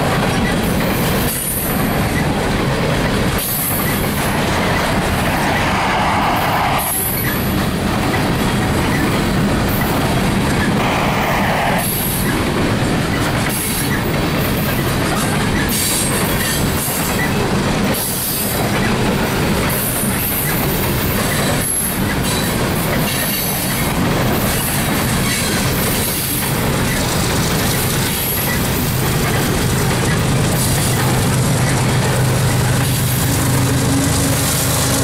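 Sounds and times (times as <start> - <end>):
steel wheels rumbling on rail: 0.0 - 35.0
high wheel squeal: 3.4 - 7.6.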